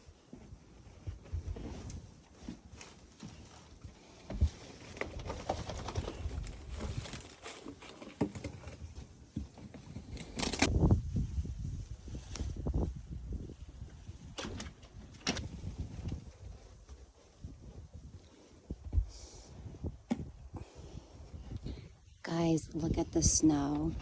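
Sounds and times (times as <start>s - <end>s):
wind buffeting microphone: 10.5s - 24.0s.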